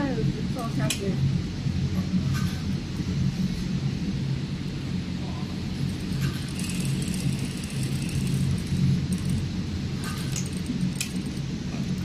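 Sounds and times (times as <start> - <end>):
sewing machine humming: 5.8 - 11.4.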